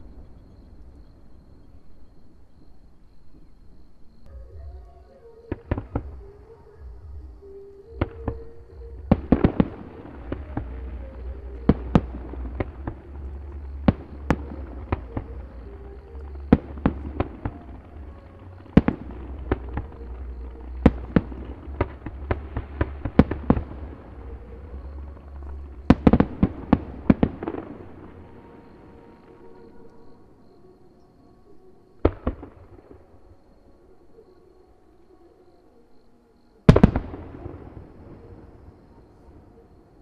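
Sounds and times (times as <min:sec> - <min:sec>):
crackling firework reports: 0:08.0 - 0:29.5.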